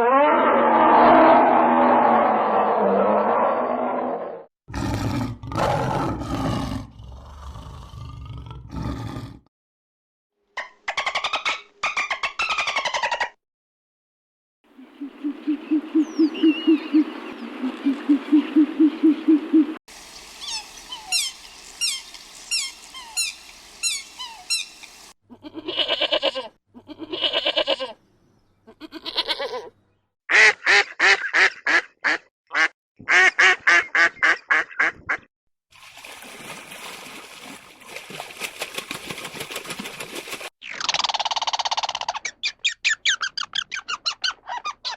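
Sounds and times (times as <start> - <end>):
geese honking: 20.1 - 25.1
high chirps: 20.1 - 25.1.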